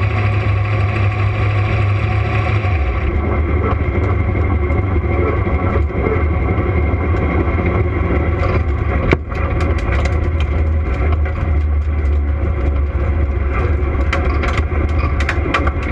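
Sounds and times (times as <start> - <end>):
car engine running at low revs: 0.0 - 15.9.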